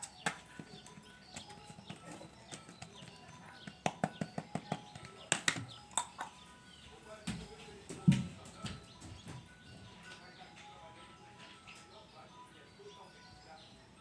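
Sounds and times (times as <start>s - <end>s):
faint steady tones: 0.0s - 14.0s
light taps and clicks: 0.2s - 6.4s.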